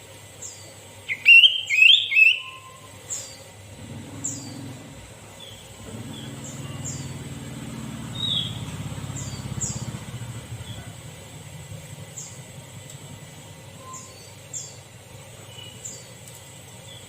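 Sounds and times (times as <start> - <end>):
low steady hum: 0.0 - 17.0
bulbul chirping: 8.1 - 10.9.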